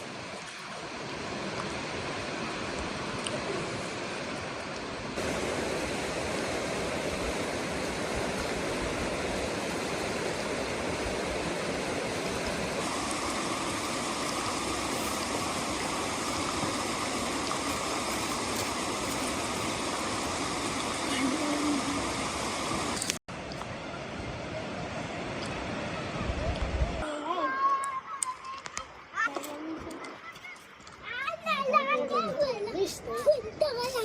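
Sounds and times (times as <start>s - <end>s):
heavy rain rushing: 5.1s - 23.2s.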